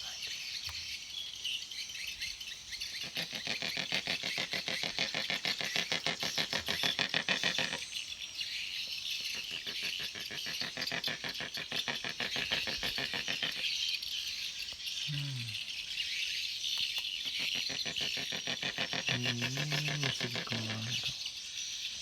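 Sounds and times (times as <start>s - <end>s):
high rattling animal calls: 2.9s - 8.0s, 9.2s - 15.8s, 17.0s - 21.7s.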